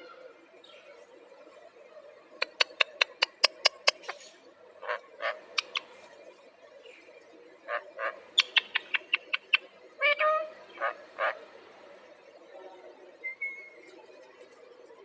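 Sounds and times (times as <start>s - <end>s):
parrot chirping and clicking: 2.4s - 4.1s, 5.6s - 5.9s, 8.4s - 9.6s
parrot squawk: 4.8s - 5.8s, 7.7s - 11.4s.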